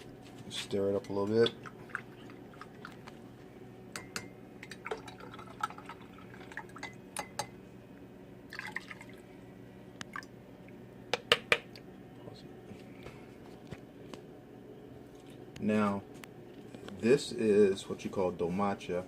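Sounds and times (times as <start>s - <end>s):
liquid swirling: 1.4s - 3.2s, 4.6s - 6.9s.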